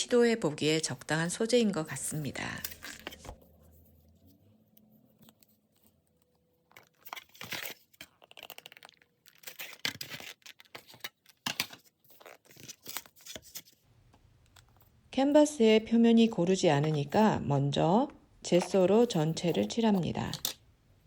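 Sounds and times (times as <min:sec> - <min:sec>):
crinkling and tearing handling sounds: 0:05.0 - 0:14.9.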